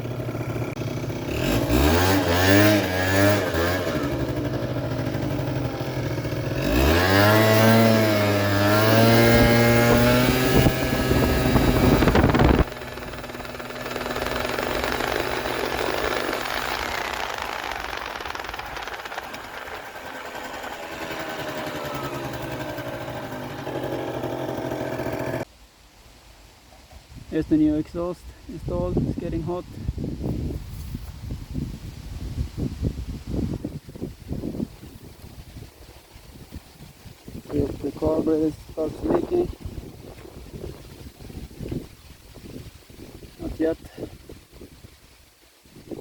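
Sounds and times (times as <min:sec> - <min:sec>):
scooter engine revving: 0:00.0 - 0:25.5.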